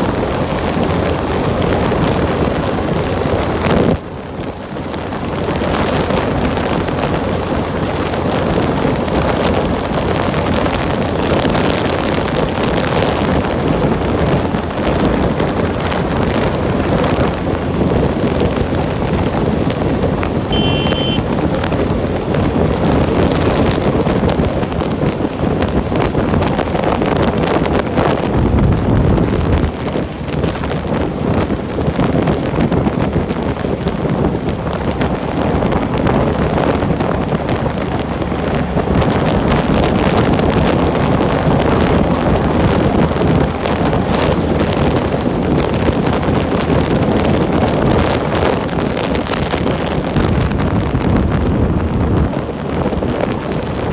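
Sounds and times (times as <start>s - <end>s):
wind buffeting microphone: 0.0s - 53.9s
brief high-pitched tone: 20.5s - 21.4s.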